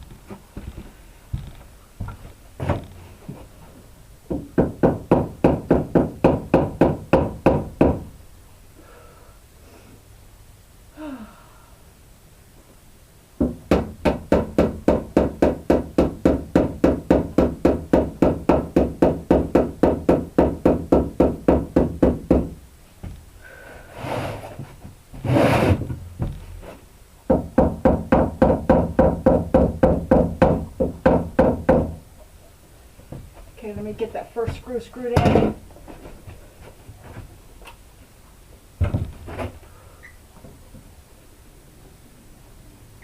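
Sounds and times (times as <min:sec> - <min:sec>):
short scrapes: 0:23.8 - 0:25.9.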